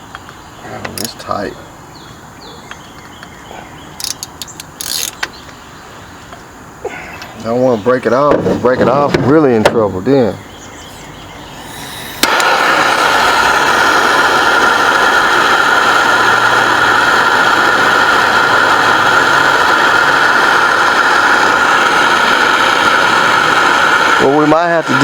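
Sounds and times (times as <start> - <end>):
loud machine whine: 7.3 - 25.0.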